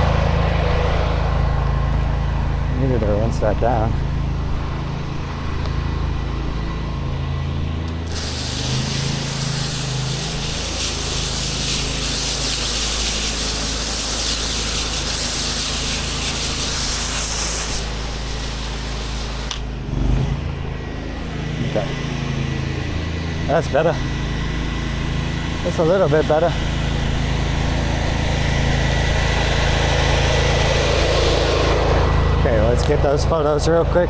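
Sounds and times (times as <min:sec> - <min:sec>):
pressure washer engine running: 0:00.0 - 0:34.0
pressure washer spray hissing: 0:08.0 - 0:19.9.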